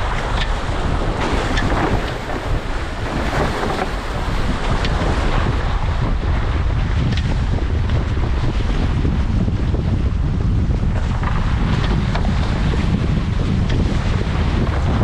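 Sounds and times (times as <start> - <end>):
rushing splashing water: 0.0 - 6.4
wind buffeting microphone: 0.0 - 15.0
short splashes: 1.1 - 4.7.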